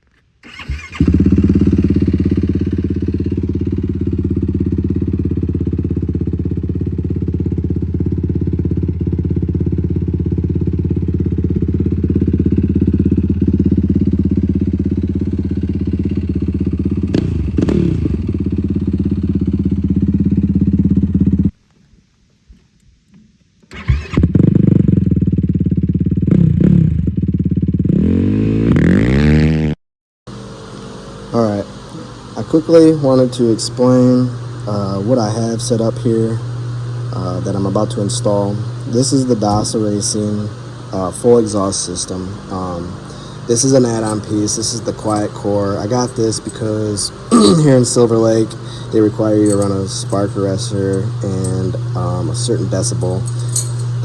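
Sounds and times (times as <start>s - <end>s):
quad engine idling and revving: 0.4s - 21.5s, 24.0s - 29.7s, 30.3s - 54.0s.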